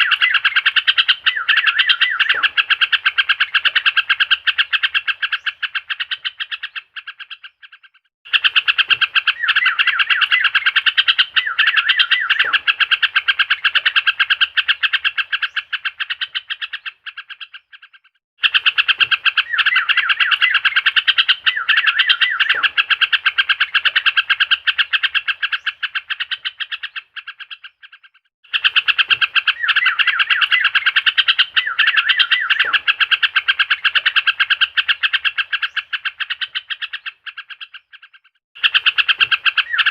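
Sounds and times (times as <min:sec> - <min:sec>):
bird chattering chirps: 0:00.0 - 0:39.9.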